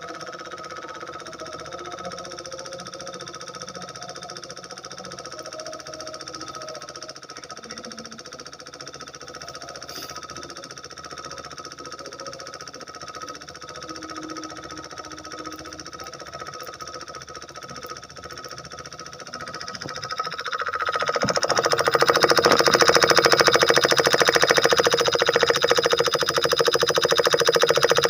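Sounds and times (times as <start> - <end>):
miniature engine running: 0.0 - 28.0.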